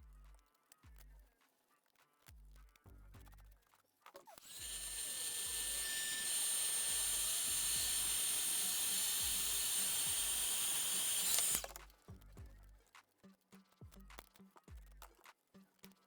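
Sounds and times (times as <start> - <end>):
faint music with bass beat: 0.0 - 4.3, 11.6 - 16.0
electric tool whining: 4.4 - 11.8.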